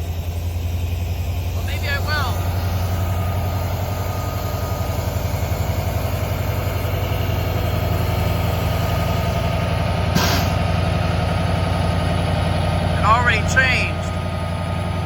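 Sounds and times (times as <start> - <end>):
locomotive engine pulsing rumble: 0.0 - 15.0
air hiss: 10.1 - 10.6.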